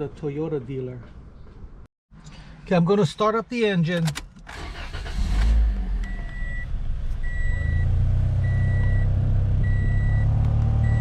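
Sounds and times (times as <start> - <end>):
car engine starting: 4.0 - 11.0
dashboard warning chime beeping: 6.1 - 11.0.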